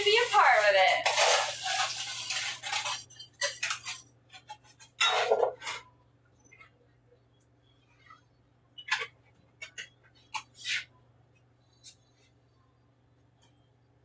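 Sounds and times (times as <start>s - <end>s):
cups and utensils clinking: 0.9s - 5.8s.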